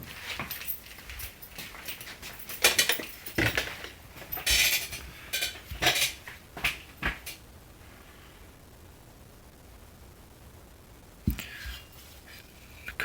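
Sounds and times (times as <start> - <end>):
metal parts rattling: 0.1 - 7.4
metal parts clinking: 0.2 - 7.4.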